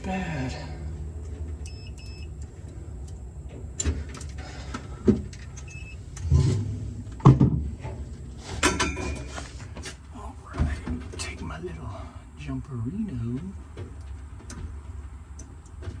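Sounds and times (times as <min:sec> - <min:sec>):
steady low hum: 0:00.0 - 0:16.0
tools and parts clattering: 0:03.8 - 0:10.0.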